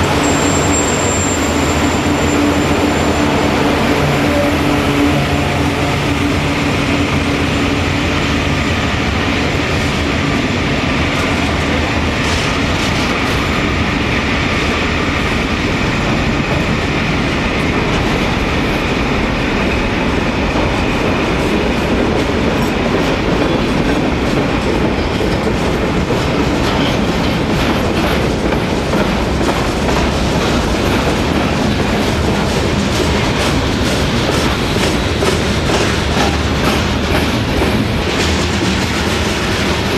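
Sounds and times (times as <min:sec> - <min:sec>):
freight train cars rolling: 0:00.0 - 0:39.9
steel wheels clicking over rail joints: 0:23.0 - 0:39.9.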